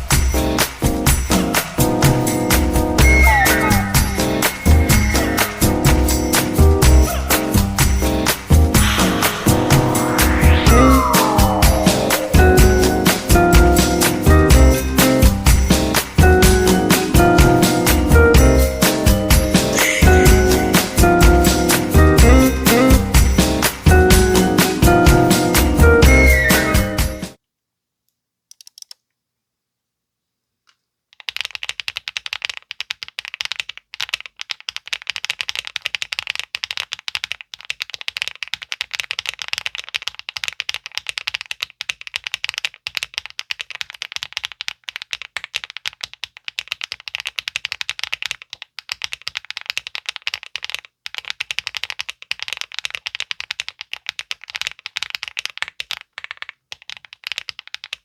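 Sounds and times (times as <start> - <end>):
rapid typing on a keyboard: 31.1 - 58.0.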